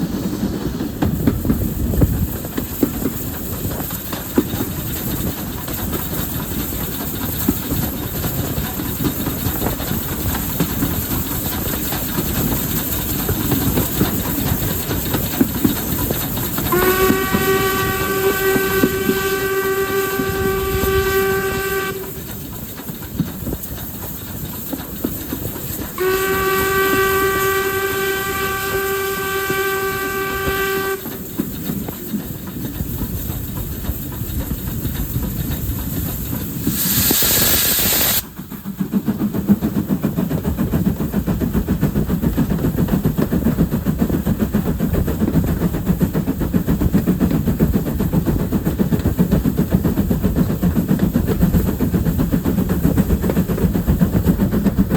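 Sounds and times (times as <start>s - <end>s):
steam hissing: 0.0s - 54.9s
train rhythmic chugging: 0.0s - 54.9s
steam locomotive whistle: 16.6s - 22.3s, 26.0s - 31.2s.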